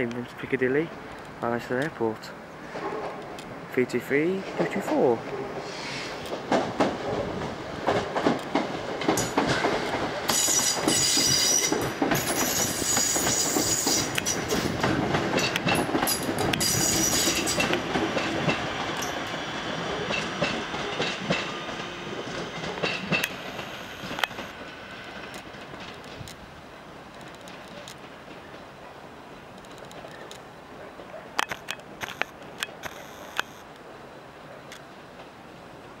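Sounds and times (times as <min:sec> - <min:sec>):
train wheels clicking over rail joints: 0:05.8 - 0:33.6
high-pitched metallic squealing: 0:10.3 - 0:11.7.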